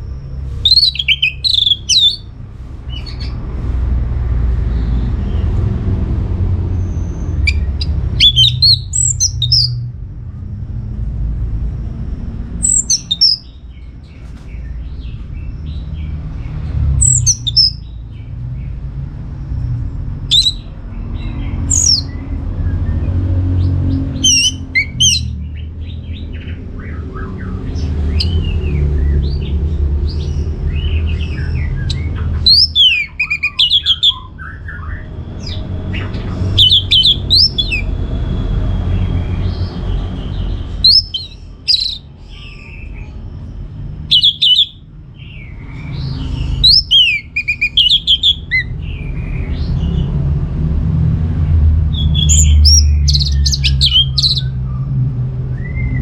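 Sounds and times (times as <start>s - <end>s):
low rumble: 0.0s - 32.7s
thrush singing whistled notes: 0.5s - 2.3s, 6.8s - 9.8s, 12.6s - 13.6s, 17.0s - 18.0s, 20.3s - 22.2s, 24.0s - 27.0s, 30.1s - 37.9s, 39.4s - 43.0s, 44.0s - 49.0s, 51.9s - 54.8s.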